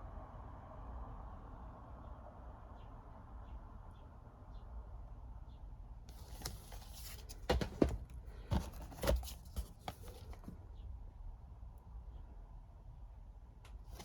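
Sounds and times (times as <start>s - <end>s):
packaging rustling: 6.1s - 10.6s
plastic cases clicking and knocking: 6.1s - 10.6s.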